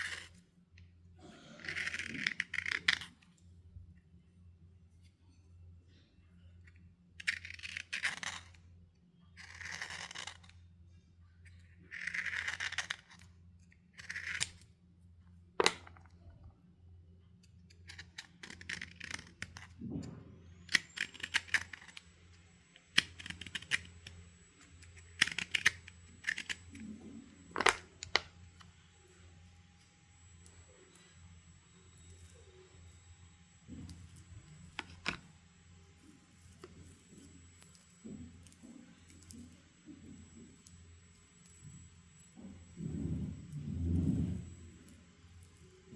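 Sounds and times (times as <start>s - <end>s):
chalk snapping and crunching: 1.4s - 3.1s, 9.4s - 10.5s, 11.9s - 13.2s, 14.0s - 14.6s
faint high whine: 17.6s - 45.9s.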